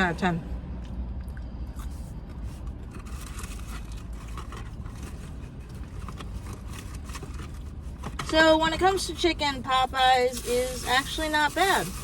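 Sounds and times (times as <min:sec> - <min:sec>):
food packaging rustling: 0:02.4 - 0:12.0.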